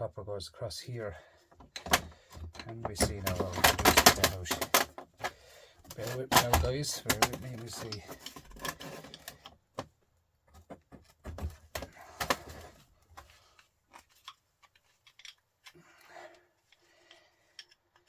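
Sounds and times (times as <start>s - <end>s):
hand tools clicking on metal: 1.6s - 9.5s.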